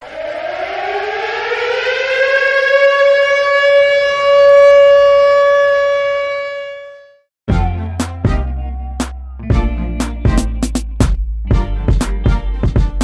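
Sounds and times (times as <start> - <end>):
fire truck siren wailing: 0.0 - 10.0.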